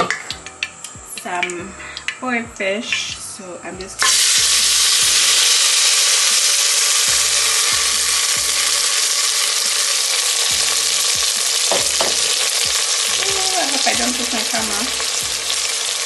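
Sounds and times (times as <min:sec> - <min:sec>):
food sizzling in hot oil: 0:04.0 - 0:16.0.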